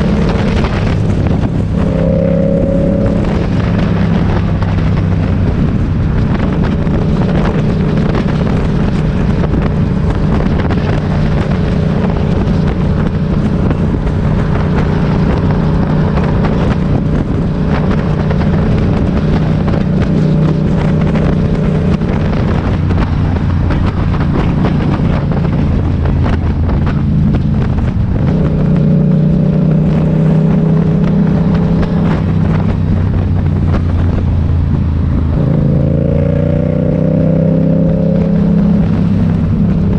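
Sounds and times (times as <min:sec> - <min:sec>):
motorcycle engine running: 0:00.0 - 0:39.9
road and air noise: 0:00.0 - 0:39.9.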